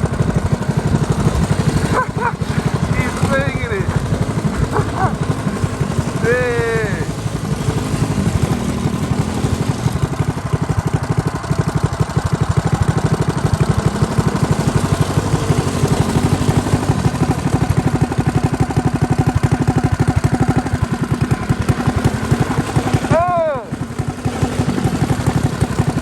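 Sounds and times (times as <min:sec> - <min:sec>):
small engine chugging: 0:00.0 - 0:26.0.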